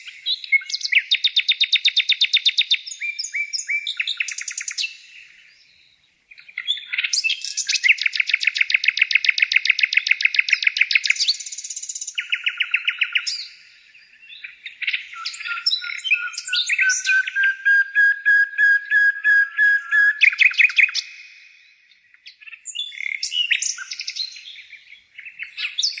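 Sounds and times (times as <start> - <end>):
bird chirps and trills: 6.3 - 26.0.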